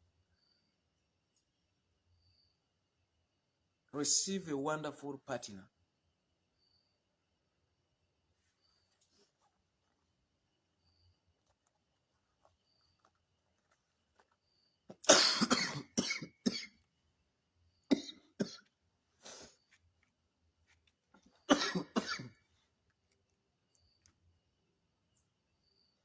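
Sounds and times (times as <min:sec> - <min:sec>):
man coughing: 0:15.1 - 0:16.7, 0:17.9 - 0:18.6, 0:21.5 - 0:22.3.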